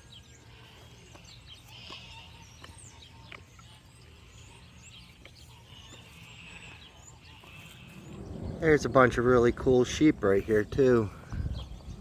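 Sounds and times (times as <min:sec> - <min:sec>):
birds chirping: 0:00.0 - 0:12.0
low outdoor rumble: 0:03.7 - 0:12.0.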